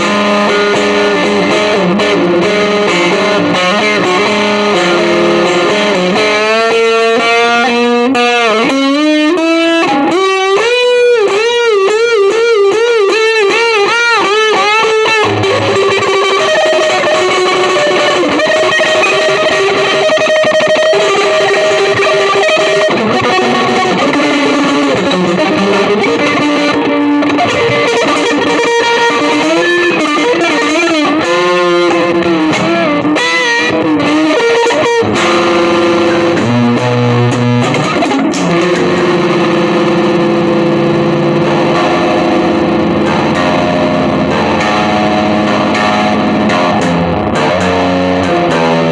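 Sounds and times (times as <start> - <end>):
distorted electric guitar: 0.0 - 48.9.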